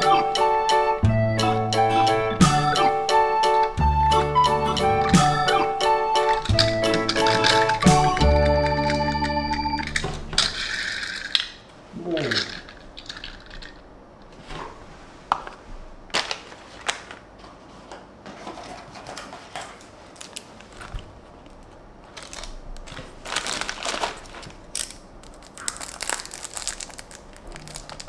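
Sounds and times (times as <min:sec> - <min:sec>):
packaging crinkling: 0:06.3 - 0:11.5, 0:16.1 - 0:17.3, 0:19.0 - 0:28.0.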